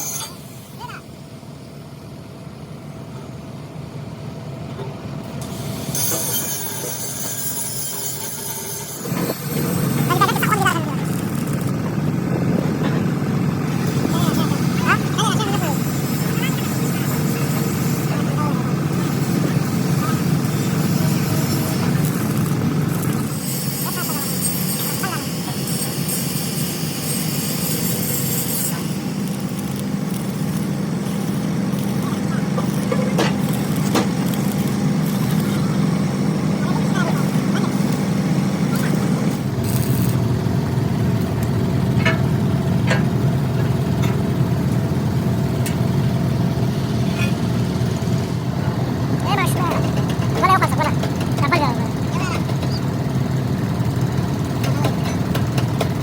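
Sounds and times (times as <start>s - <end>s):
high metallic screech and hiss: 0.0s - 0.8s, 5.4s - 11.6s, 13.8s - 35.7s
steady machine hum: 8.8s - 56.0s.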